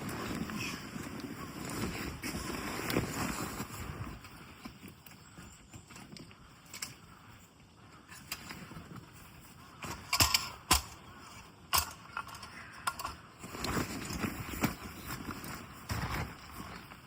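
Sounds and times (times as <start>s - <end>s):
faint rustling: 0.0s - 17.0s
sharp knocks and cracks: 9.8s - 11.0s.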